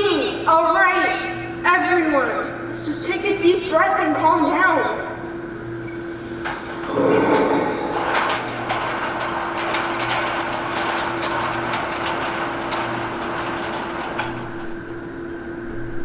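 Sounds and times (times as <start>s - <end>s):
steady hum: 0.0s - 16.0s
knocks and clatters: 6.4s - 14.9s
noisy rush: 6.9s - 8.5s.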